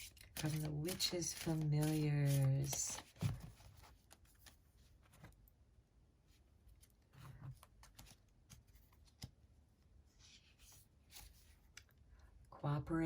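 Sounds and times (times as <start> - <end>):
cards rustling: 0.0 - 5.3.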